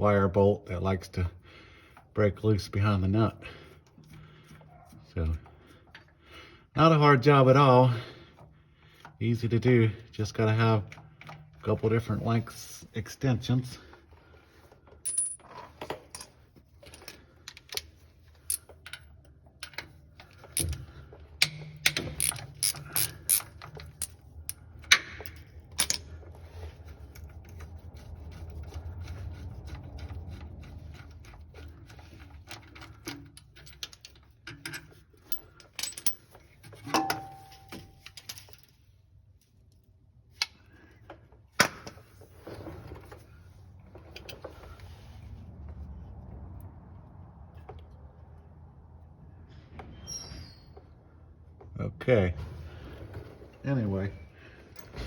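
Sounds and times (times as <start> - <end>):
ratchet wrench clicking: 21.4 - 24.6.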